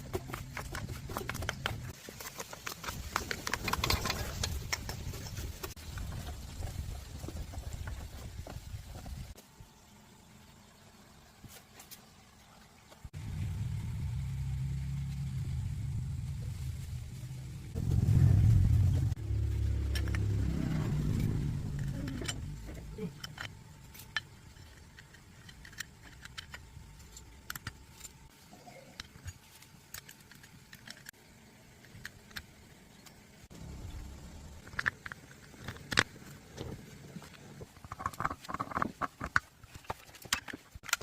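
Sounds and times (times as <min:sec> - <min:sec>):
engine humming: 0:13.1 - 0:28.3, 0:33.5 - 0:37.6.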